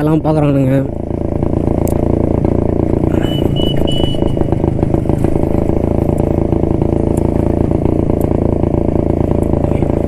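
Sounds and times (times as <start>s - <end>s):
motorcycle engine running: 0.0s - 10.0s
high beeping tone: 3.2s - 4.6s.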